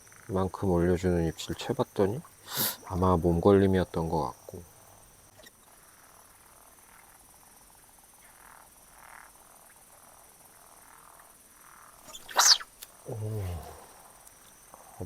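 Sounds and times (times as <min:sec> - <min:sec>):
faint frogs croaking: 0:00.0 - 0:15.0
high insect trill: 0:00.0 - 0:15.0.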